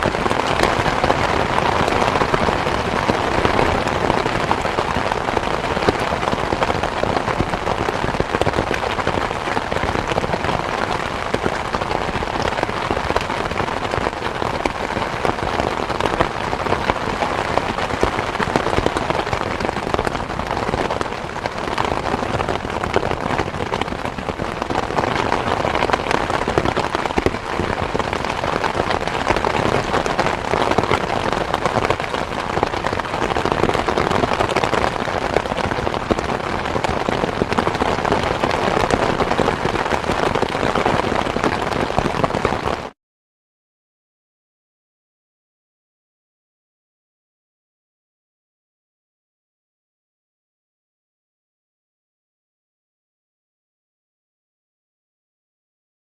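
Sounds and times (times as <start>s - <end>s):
rain falling steadily: 0.0s - 43.0s.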